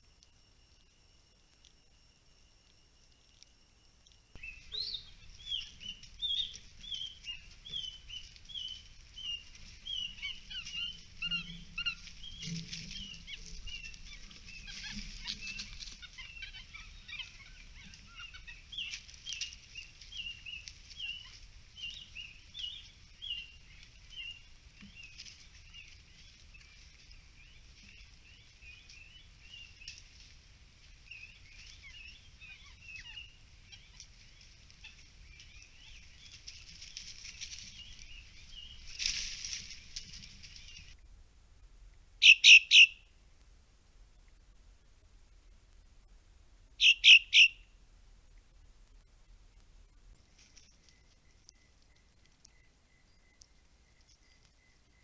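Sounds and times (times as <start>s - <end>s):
bird chirping: 4.0s - 30.2s, 30.8s - 41.0s, 42.2s - 43.1s, 46.8s - 47.7s, 49.5s - 55.0s.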